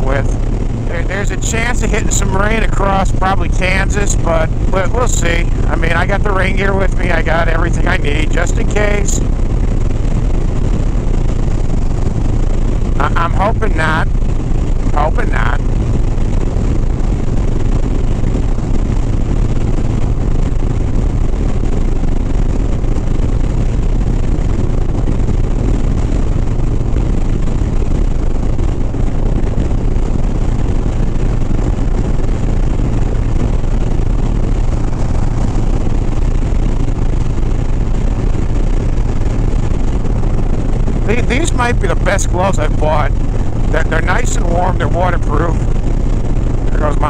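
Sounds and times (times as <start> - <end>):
wind and road noise: 0.0 - 47.0.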